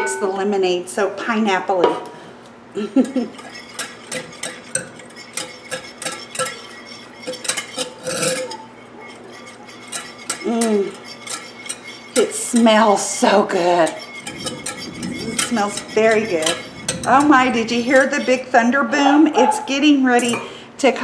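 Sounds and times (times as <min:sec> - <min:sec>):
utensil scraping bowl: 0:02.8 - 0:20.5
utensil clinking in bowl: 0:03.0 - 0:18.4.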